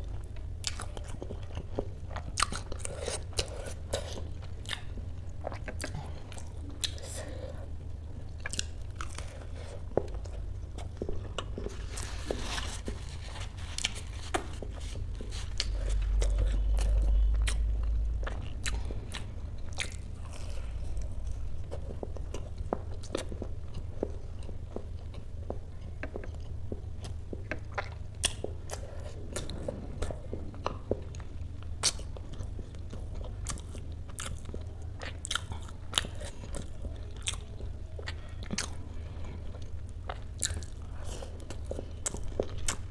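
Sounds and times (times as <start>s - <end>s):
crunchy chewing: 8.2s - 42.9s
low rumble: 14.5s - 22.6s, 28.6s - 33.6s.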